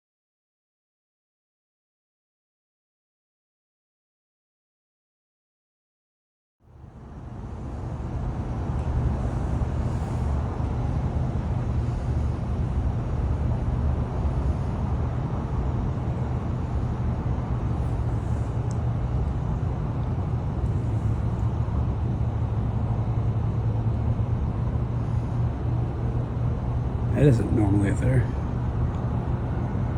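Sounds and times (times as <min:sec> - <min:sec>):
engine rumble: 0:06.7 - 0:29.9.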